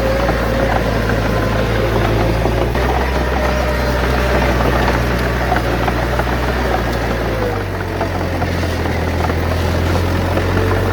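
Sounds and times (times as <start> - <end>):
diesel machinery droning: 0.0 - 10.9.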